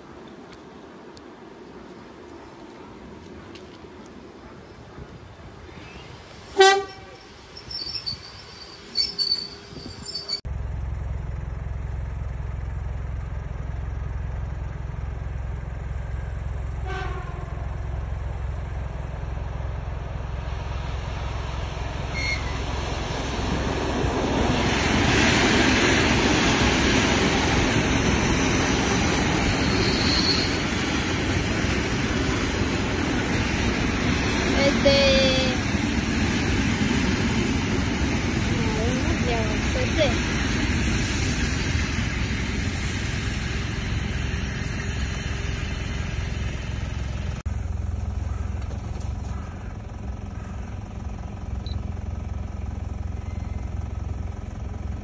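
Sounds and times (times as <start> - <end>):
electric train rushing past: 0.8 - 10.4, 16.2 - 48.2.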